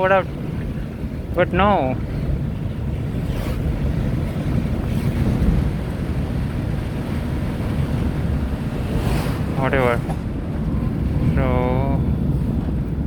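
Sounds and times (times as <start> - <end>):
car engine rumble: 0.0 - 13.0
tyres on wet road: 4.3 - 13.0.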